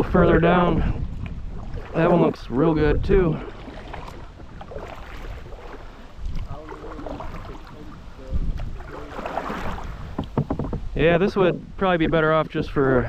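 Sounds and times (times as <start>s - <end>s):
water and paddling: 0.0s - 13.0s
wind buffeting microphone: 0.0s - 13.0s.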